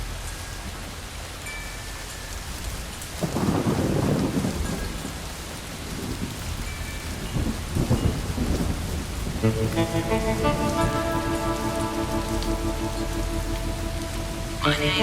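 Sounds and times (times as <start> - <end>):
steady rain: 0.0 - 15.0
thunder rolling: 3.2 - 6.6, 7.2 - 15.0
sustained music tones: 9.4 - 15.0.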